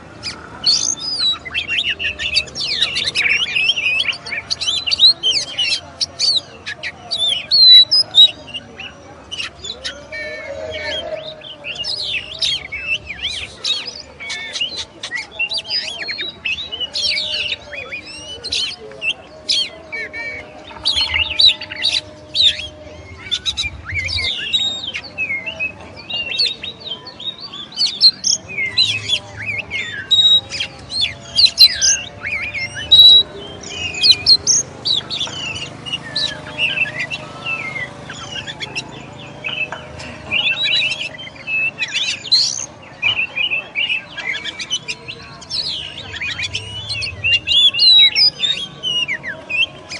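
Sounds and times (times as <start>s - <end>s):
magpie-robin singing: 0.0s - 49.9s.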